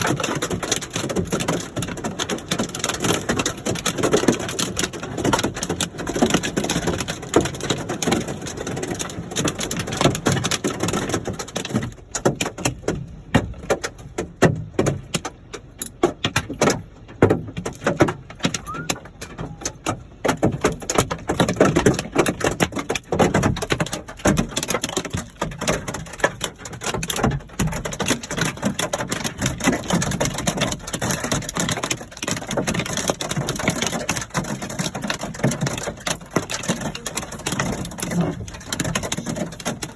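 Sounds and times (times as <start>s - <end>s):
hailstones pelting hard surfaces: 0.0s - 39.9s.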